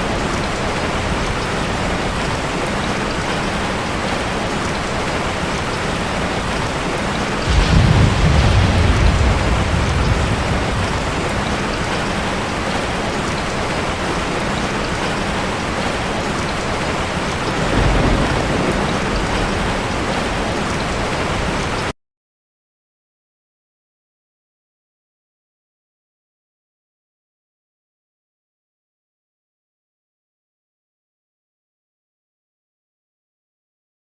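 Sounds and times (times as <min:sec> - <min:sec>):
ocean surf washing: 0:00.0 - 0:21.9
wave breaking: 0:07.4 - 0:13.0.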